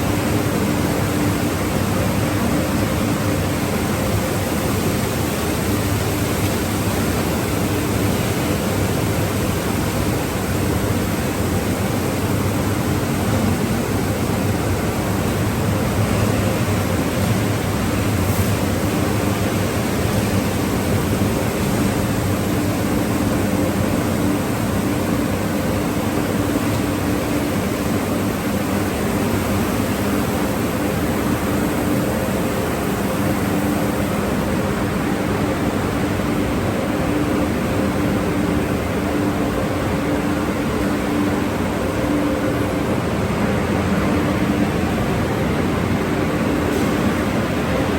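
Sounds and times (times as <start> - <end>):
car wash machinery hissing: 0.0 - 47.9.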